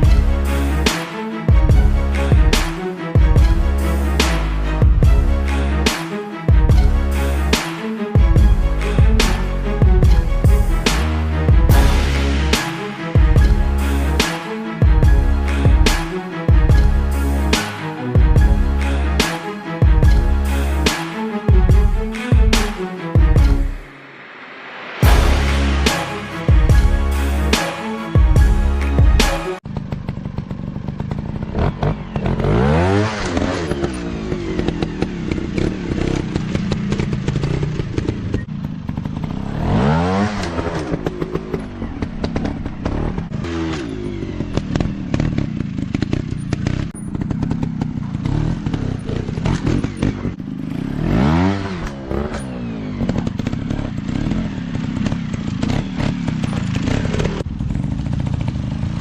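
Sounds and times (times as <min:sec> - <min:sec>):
dirt bike engine revving: 0:25.0 - 0:59.0.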